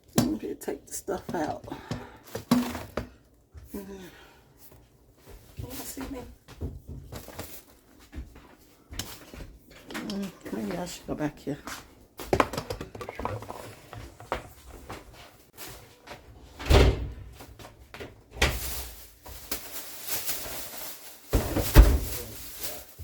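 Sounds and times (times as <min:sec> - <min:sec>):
groceries thudding on surfaces: 0:01.2 - 0:03.2, 0:18.5 - 0:23.0
cupboard and fridge doors: 0:12.2 - 0:19.2, 0:21.3 - 0:22.4.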